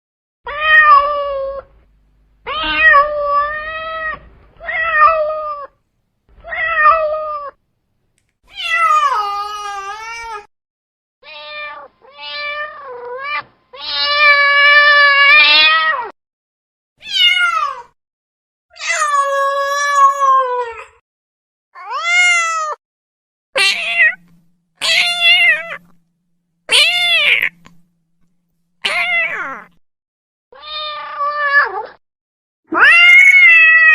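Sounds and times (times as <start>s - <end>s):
cat meowing: 0.5s - 1.7s, 2.4s - 5.8s, 11.2s - 16.1s, 17.0s - 17.9s, 21.8s - 22.8s, 23.6s - 26.0s, 26.7s - 27.9s, 28.8s - 29.8s, 30.6s - 32.0s, 32.7s - 33.9s.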